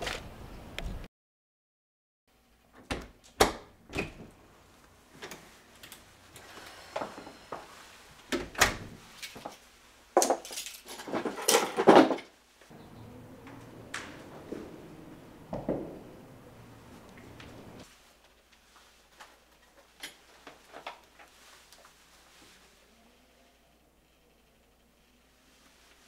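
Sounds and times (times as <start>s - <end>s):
clicks and rattles of handled objects: 10.2s - 12.3s.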